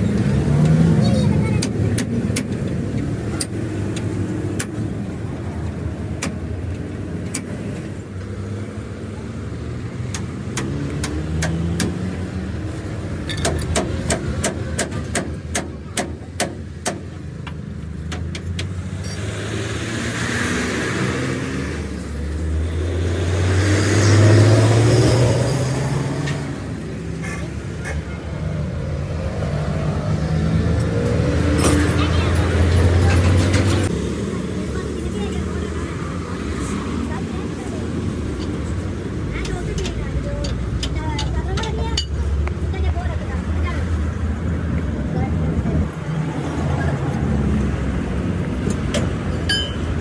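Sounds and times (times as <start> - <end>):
vehicle driving past: 18.8 - 34.3.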